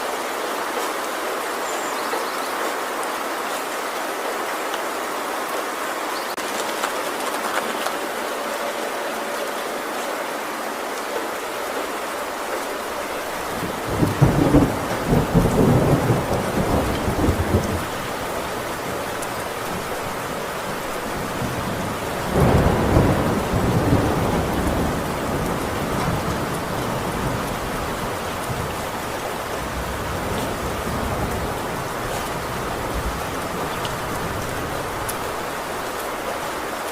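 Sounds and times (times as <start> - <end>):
heavy rain on a metal roof: 0.0 - 36.9
thunder rumbling: 12.8 - 36.5.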